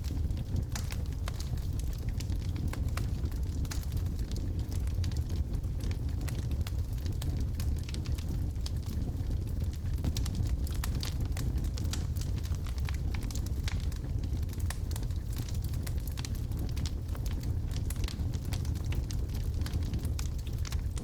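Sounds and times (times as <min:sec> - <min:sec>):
low rumble of flames: 0:00.0 - 0:21.0
wood crackling and popping: 0:00.0 - 0:21.0.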